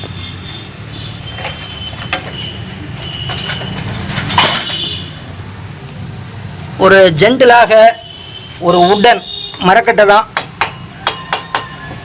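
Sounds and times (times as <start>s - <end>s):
metal knocks and squeaks: 1.0s - 5.0s
metal scrape: 1.3s - 5.1s.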